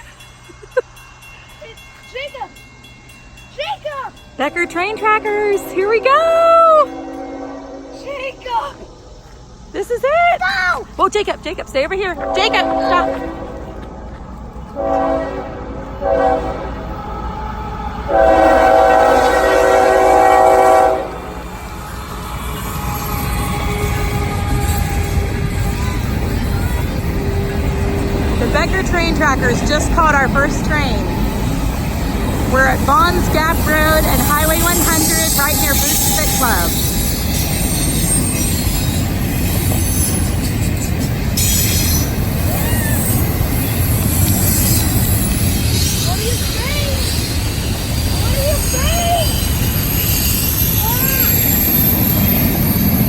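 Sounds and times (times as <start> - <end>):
train rumbling: 0.0 - 53.0
locomotive air horn: 4.6 - 8.6, 12.2 - 13.8, 14.8 - 25.8, 32.6 - 37.0.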